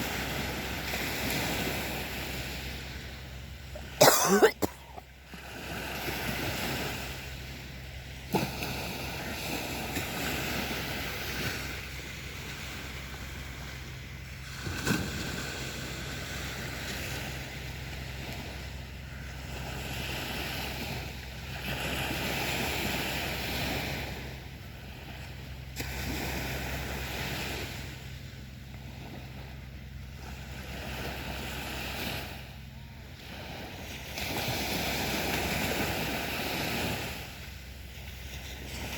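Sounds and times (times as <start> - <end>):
sea surf washing onto beach: 0.0 - 38.9.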